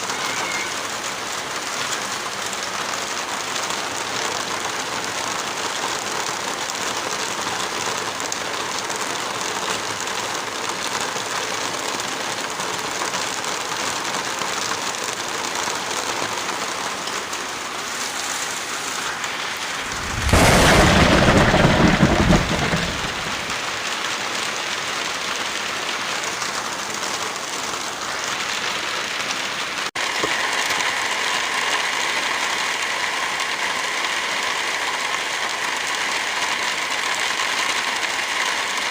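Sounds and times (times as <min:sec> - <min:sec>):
heavy rainfall: 0:00.0 - 0:38.9
loud low rumble: 0:19.7 - 0:23.6.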